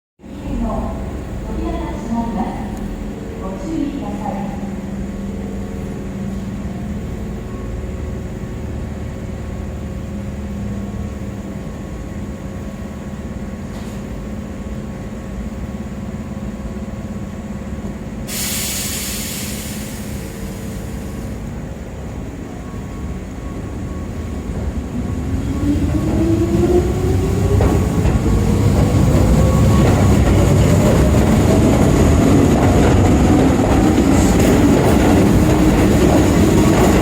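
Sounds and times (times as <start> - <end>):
electric train humming: 0.2 - 37.0
air brakes hissing: 18.2 - 21.5.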